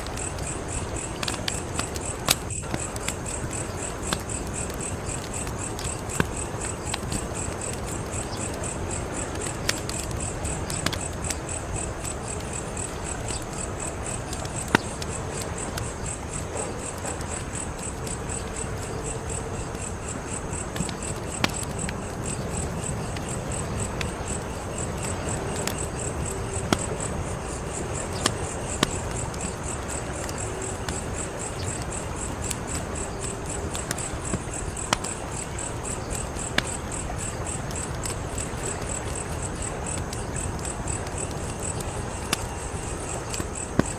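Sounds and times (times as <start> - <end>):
crickets chirping: 0.0 - 43.9
wood fire crackling: 0.0 - 43.9.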